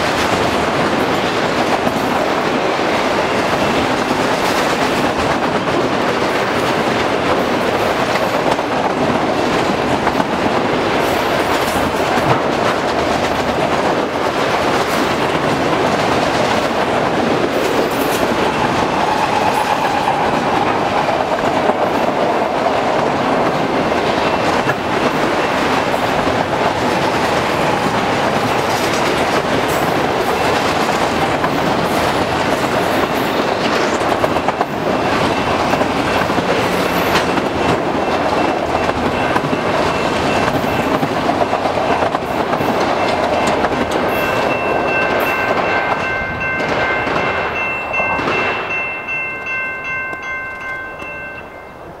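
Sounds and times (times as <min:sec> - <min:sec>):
wheels clacking over rail joints: 0:00.0 - 0:51.4
steady high ringing tone: 0:42.7 - 0:52.0.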